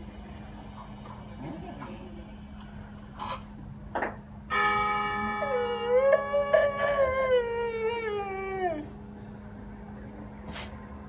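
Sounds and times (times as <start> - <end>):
bell ringing: 4.5 - 5.7
dog howling: 5.2 - 9.0.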